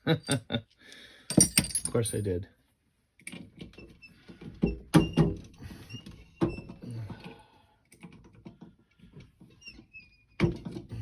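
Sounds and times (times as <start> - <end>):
small metal parts clinking: 1.3 - 2.4.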